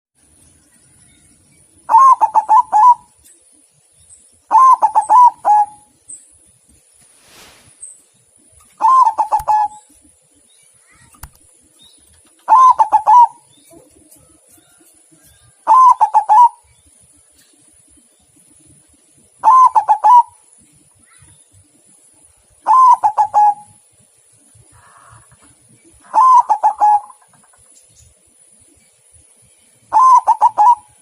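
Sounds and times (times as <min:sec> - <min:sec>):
dove cooing: 0:01.9 - 0:03.2, 0:04.5 - 0:05.9, 0:08.8 - 0:10.1, 0:12.3 - 0:14.8, 0:15.6 - 0:16.6, 0:19.4 - 0:20.4, 0:22.6 - 0:23.8, 0:24.7 - 0:27.5, 0:29.9 - 0:31.0.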